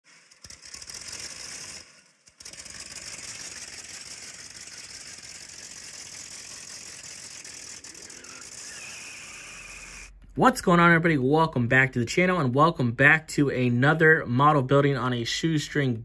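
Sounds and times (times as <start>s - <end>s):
hot rod engine running: 0.1s - 11.2s.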